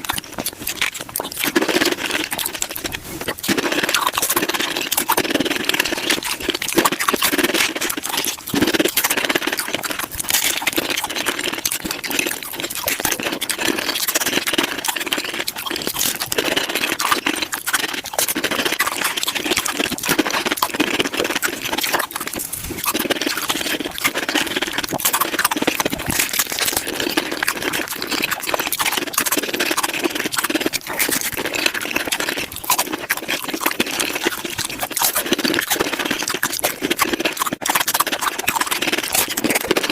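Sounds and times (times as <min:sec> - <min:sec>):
sped-up chewing and crunching: 0:00.0 - 0:39.9.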